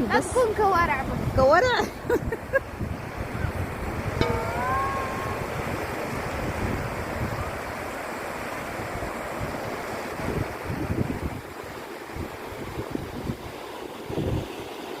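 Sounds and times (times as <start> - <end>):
wind buffeting microphone: 0.0 - 8.0, 8.8 - 11.6
sea surf washing ashore: 0.0 - 15.0.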